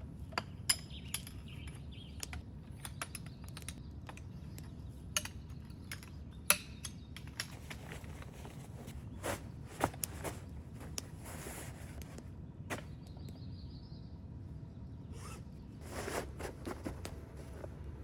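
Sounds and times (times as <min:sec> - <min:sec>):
low outdoor rumble: 0:00.0 - 0:18.0
zipper-like rustles: 0:15.1 - 0:17.6.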